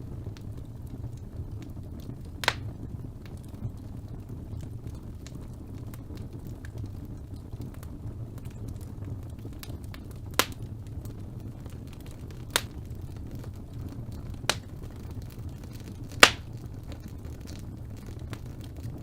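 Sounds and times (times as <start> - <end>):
fire burning: 0.0 - 19.0
fire crackling: 0.0 - 19.0
sharp pops from fire: 0.0 - 19.0.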